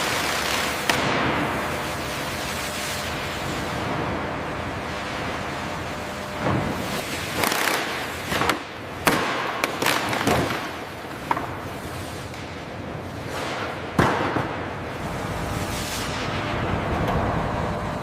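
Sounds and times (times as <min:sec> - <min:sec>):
sharp metal cracks and knocks: 0:00.0 - 0:01.5, 0:07.1 - 0:11.5, 0:13.3 - 0:14.6.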